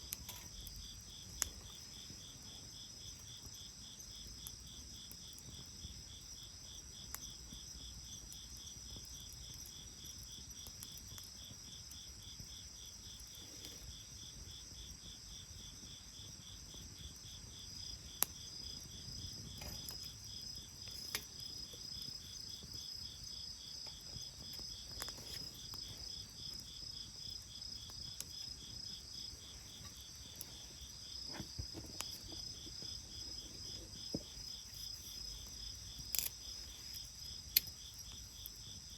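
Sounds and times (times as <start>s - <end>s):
insects chirping: 0.0s - 38.9s.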